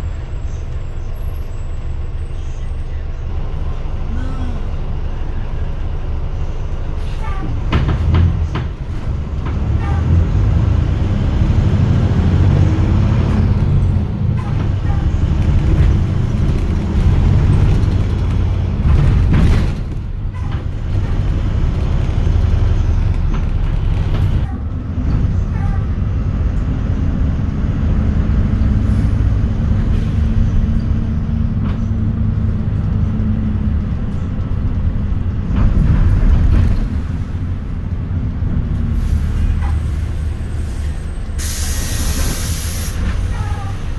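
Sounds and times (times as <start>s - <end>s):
bus diesel engine drone: 0.0s - 43.9s
air brake hisses: 40.7s - 43.2s.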